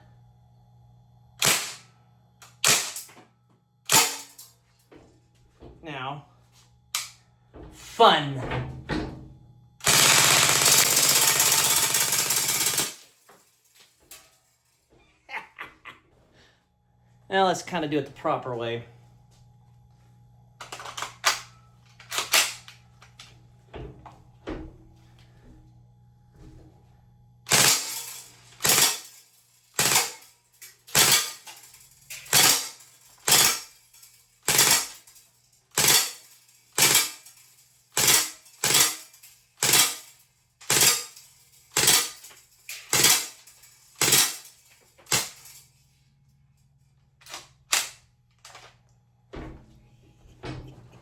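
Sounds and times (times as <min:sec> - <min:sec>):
bb gun shots: 0:01.4 - 0:01.8, 0:02.6 - 0:03.1, 0:42.9 - 0:43.4.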